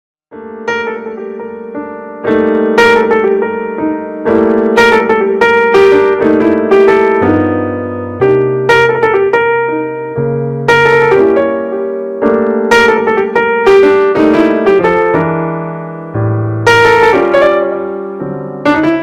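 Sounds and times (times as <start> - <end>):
slow piano chords: 0.3 - 19.0.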